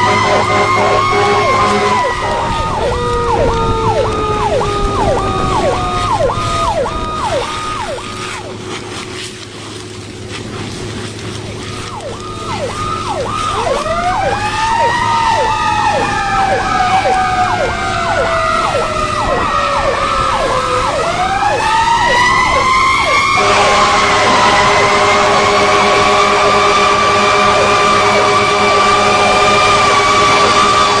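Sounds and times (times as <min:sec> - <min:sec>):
multi-note horn blast: 0:00.0 - 0:05.6, 0:14.0 - 0:31.0
electronic siren yelping: 0:00.0 - 0:08.6, 0:11.7 - 0:31.0
mechanical siren wailing: 0:00.0 - 0:09.4, 0:10.8 - 0:31.0.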